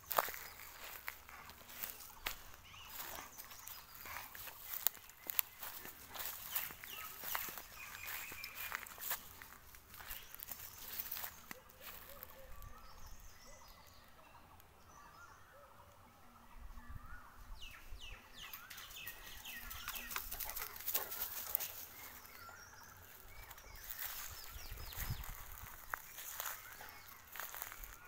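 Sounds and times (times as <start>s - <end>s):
footsteps crunching in dry leaves: 0.0s - 12.7s, 18.9s - 28.0s.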